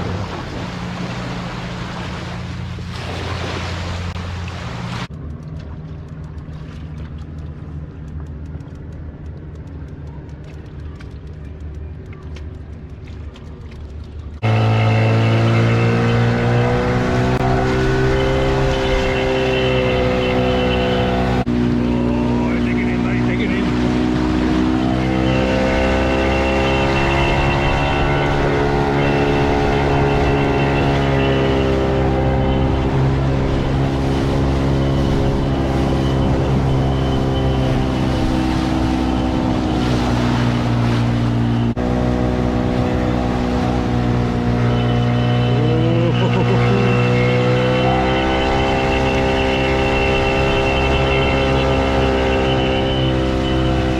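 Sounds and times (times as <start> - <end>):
outboard motor running: 0.0 - 53.9
water noise: 0.0 - 53.9
wind: 0.0 - 53.9.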